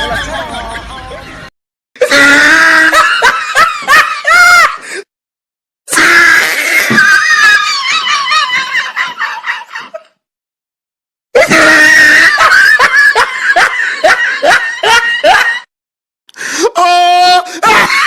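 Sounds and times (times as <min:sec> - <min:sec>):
shrill screaming: 0:05.9 - 0:08.5, 0:11.4 - 0:12.6.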